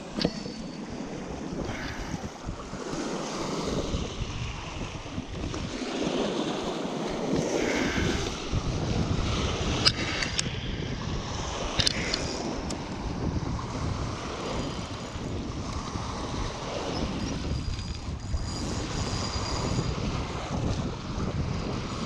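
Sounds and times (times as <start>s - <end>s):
choppy river water: 0.0s - 22.0s
wind buffeting microphone: 0.0s - 22.0s
sharp clicks: 11.8s - 12.8s.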